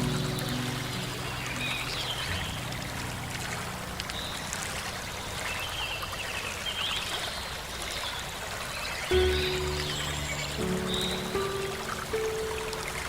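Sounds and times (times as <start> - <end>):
water running: 0.0 - 6.3, 9.1 - 13.0
bird chirps: 9.1 - 13.0.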